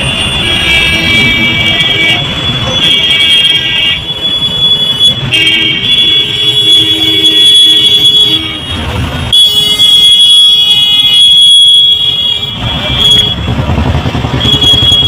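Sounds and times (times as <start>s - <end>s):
vehicle horns blasting: 0.0s - 15.0s
rumble of passing engines and tyres: 12.4s - 15.0s.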